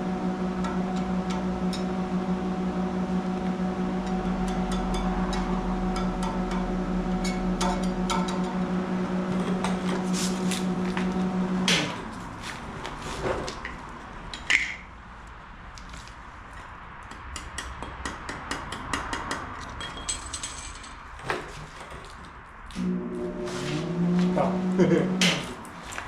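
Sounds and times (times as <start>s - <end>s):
welding machine humming: 0.0s - 12.1s, 22.8s - 25.9s
electrode scratching and tapping steel: 3.4s - 12.2s.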